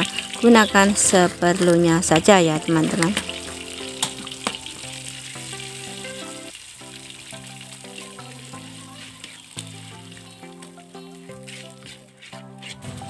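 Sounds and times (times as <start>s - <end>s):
metal spatula stirring in wok: 0.0s - 6.4s, 7.1s - 13.0s
paste sizzling in hot oil: 0.0s - 13.0s
soft background music: 0.0s - 13.0s
spatula clicks on pan: 3.0s - 4.7s.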